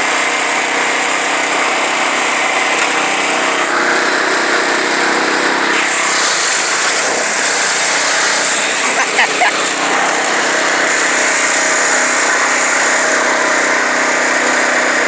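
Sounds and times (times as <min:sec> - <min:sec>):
lawn tractor engine running: 0:00.0 - 0:15.0.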